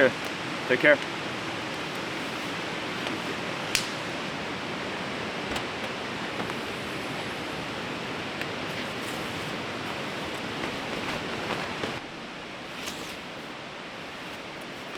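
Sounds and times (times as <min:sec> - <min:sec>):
river rushing: 0:00.0 - 0:14.9
sharp click: 0:03.7 - 0:04.0.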